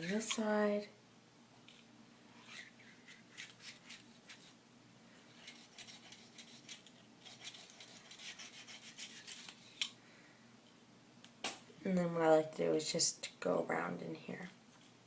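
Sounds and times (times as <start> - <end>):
cotton swab scrubbing plastic: 2.4 - 4.6, 5.4 - 9.8.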